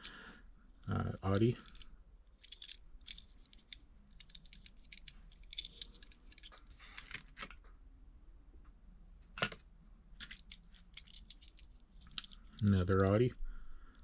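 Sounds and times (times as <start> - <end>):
model cars clicking and rattling: 1.6 - 7.1, 10.2 - 12.8.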